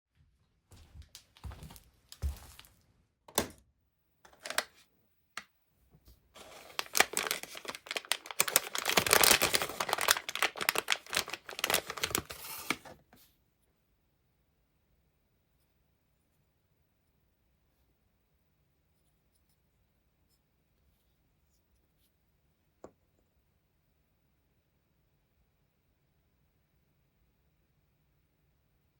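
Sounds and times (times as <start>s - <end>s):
packaging crinkling and tearing: 4.3s - 4.8s, 6.4s - 13.0s
packaging rustling and clicking: 4.3s - 4.8s, 6.4s - 13.0s.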